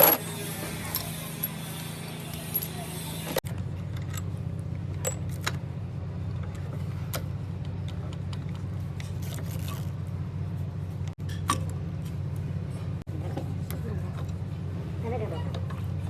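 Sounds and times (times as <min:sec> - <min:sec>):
metallic clinks of tools: 0:00.0 - 0:03.4.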